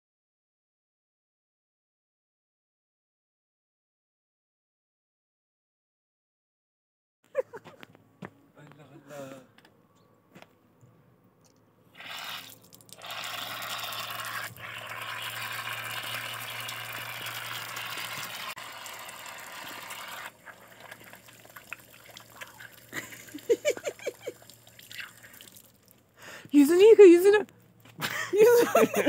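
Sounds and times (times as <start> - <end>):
water running from tap: 12.0 - 25.9
water drips: 12.0 - 26.0.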